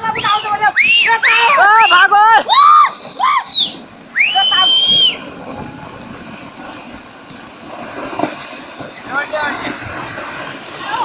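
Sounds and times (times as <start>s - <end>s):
steady rushing noise: 0.0s - 11.0s
high-pitched screaming: 0.8s - 5.3s.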